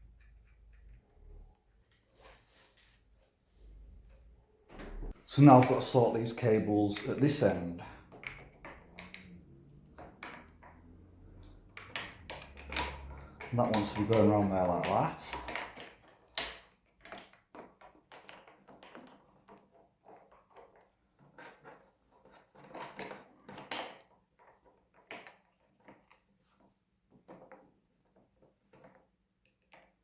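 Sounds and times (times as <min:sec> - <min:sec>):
light clicks and taps: 0:04.8 - 0:17.3.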